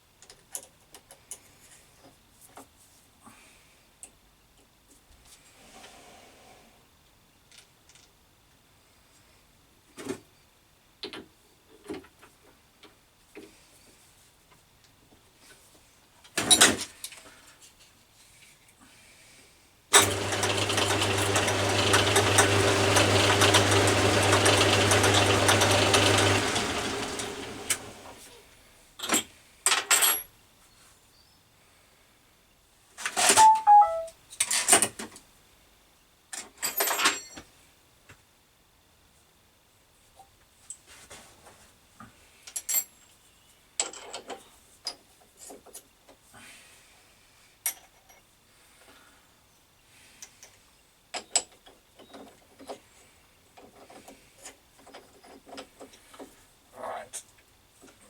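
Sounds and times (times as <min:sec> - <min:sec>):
machine motor winding down: 0:20.0 - 0:28.3
short ringing pings: 0:33.4 - 0:34.1.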